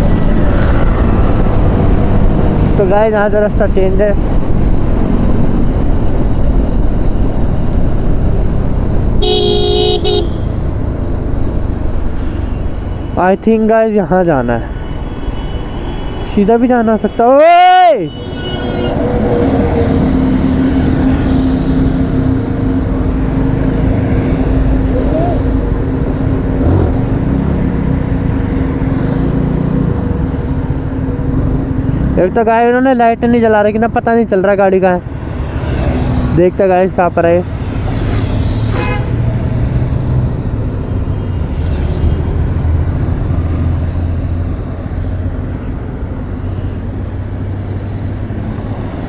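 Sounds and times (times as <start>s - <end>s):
motorcycle running at speed: 0.0s - 13.6s, 18.8s - 32.3s, 37.4s - 49.0s
wind rushing over microphone: 0.0s - 18.2s
vehicle horn: 9.2s - 10.6s, 14.9s - 19.2s, 38.7s - 39.3s.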